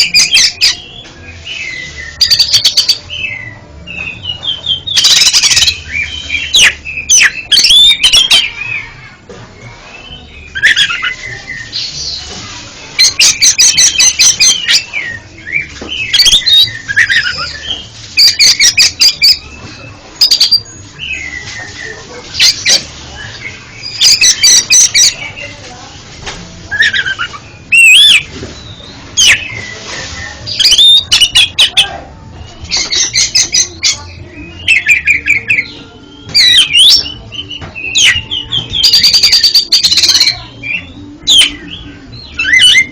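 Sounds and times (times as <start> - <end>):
bird singing whistles and ticks: 26.7 - 29.8, 30.5 - 31.8, 32.7 - 41.7.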